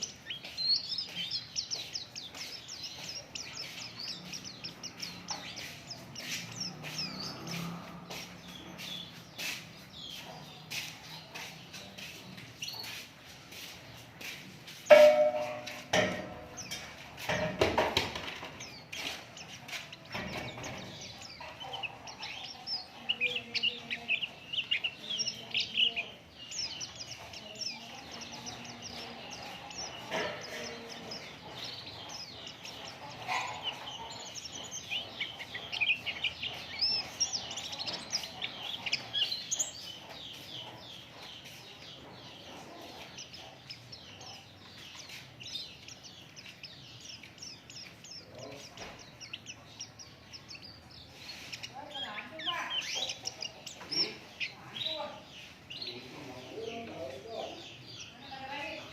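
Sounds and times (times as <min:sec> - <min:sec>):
bird chattering twitter: 0:00.0 - 0:16.9, 0:18.6 - 0:58.9
loud sharp knocks: 0:14.9 - 0:19.1.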